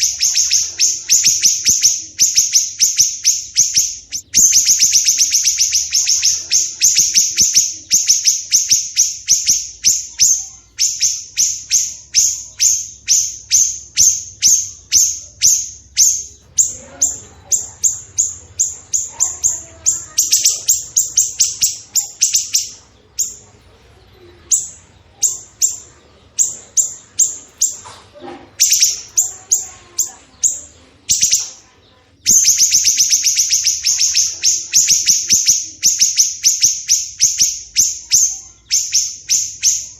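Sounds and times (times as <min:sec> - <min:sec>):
songbird chip notes: 0:00.0 - 0:39.9.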